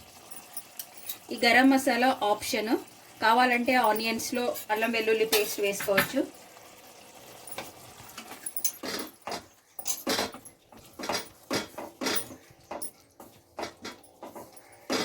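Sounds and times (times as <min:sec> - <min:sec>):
curry simmering: 0:00.0 - 0:15.0
metal spoon scraping a pan: 0:08.3 - 0:15.0.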